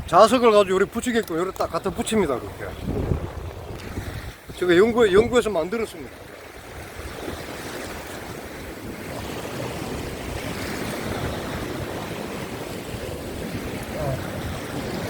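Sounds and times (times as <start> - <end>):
surf washing over rocks: 0.0 - 15.0
wind buffeting microphone: 0.0 - 15.0.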